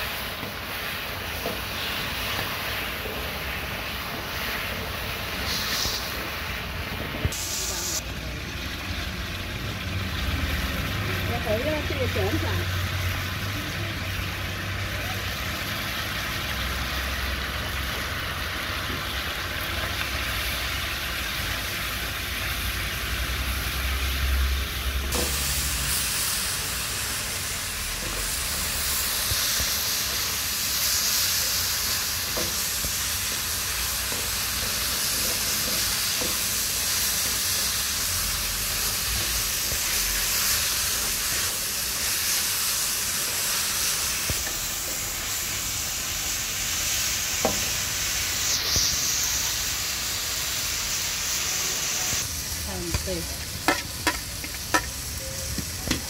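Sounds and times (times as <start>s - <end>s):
stir-fry sizzling in a wok: 0.0s - 56.0s
spatula knocking on pan: 53.7s - 54.9s.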